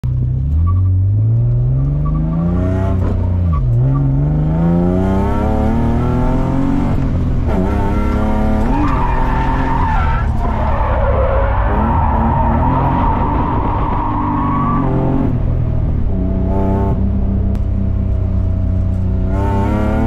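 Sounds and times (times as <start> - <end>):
car engine revving through gears: 0.1 - 20.0
tire squeal: 0.6 - 1.0, 8.5 - 15.3.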